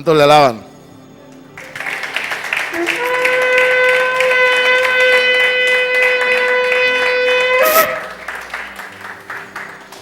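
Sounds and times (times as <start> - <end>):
shofar blowing a held note: 2.6 - 8.4.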